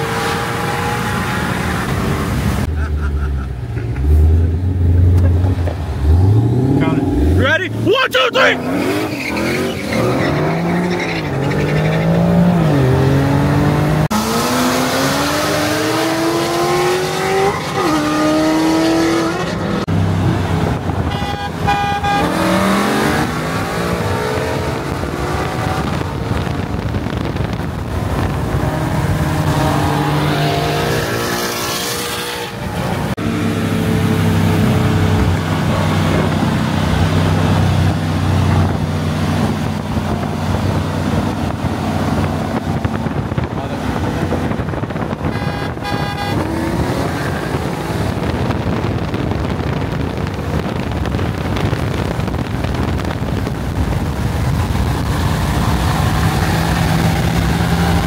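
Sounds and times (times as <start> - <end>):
car engines accelerating hard: 0.0 - 58.0.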